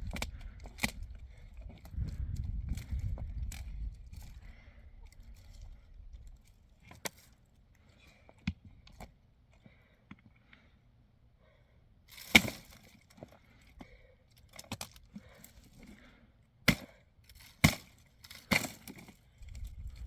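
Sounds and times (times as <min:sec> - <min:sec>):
firewood being chopped: 0:12.1 - 0:12.9, 0:16.7 - 0:19.1.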